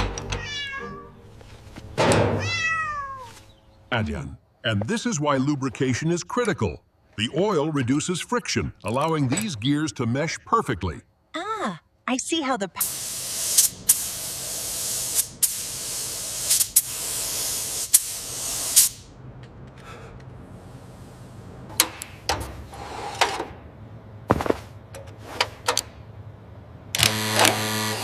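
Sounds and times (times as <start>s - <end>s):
hissing spray: 12.8s - 19.1s.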